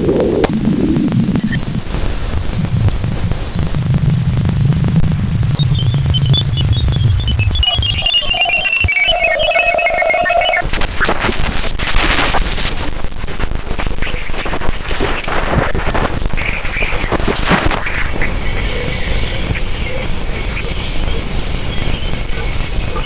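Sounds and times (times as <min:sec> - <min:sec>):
crackling static hiss: 0:00.0 - 0:23.0
steady mid-pitched tone: 0:00.2 - 0:10.6
falling whistling tones: 0:05.4 - 0:10.6.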